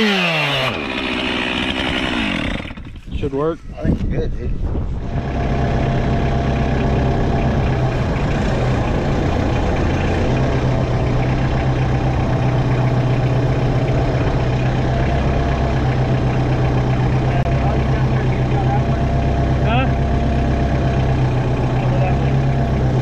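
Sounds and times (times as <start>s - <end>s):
diesel tractor engine running: 4.8s - 23.0s.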